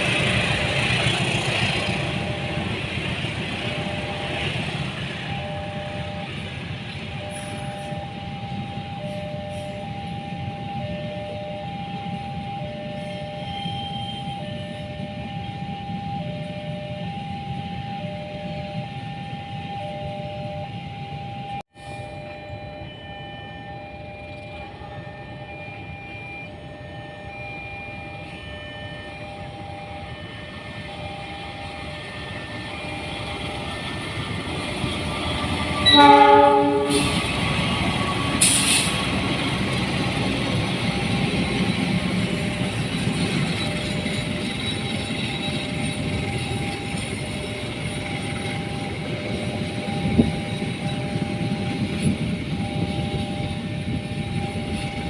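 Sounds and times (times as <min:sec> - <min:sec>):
level crossing warning bell: 0:00.0 - 0:55.0
rail traffic rumble: 0:00.0 - 0:55.0
train horn blast: 0:35.7 - 0:39.2.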